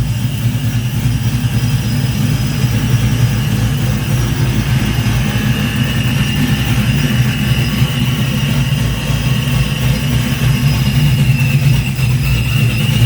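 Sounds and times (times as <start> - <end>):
engine idling: 0.0 - 13.0
high whine: 0.0 - 13.0.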